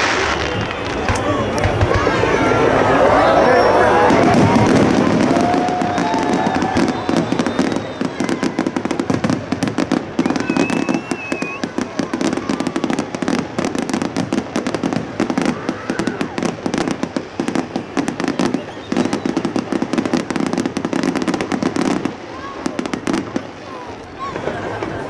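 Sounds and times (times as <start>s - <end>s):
steady wash of noise: 0.0s - 10.2s
fireworks crackles and bangs: 0.0s - 25.0s.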